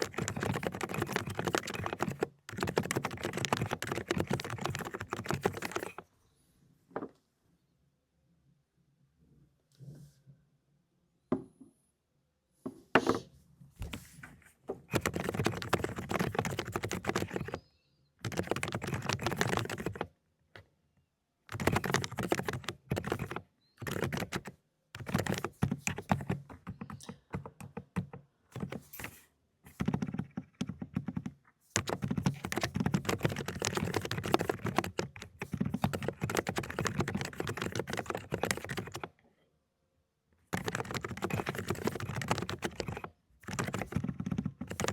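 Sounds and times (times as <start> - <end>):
fast typing on mechanical keyboard: 0.0 - 6.0, 14.9 - 17.6, 18.2 - 20.2, 21.5 - 39.1, 40.5 - 44.9.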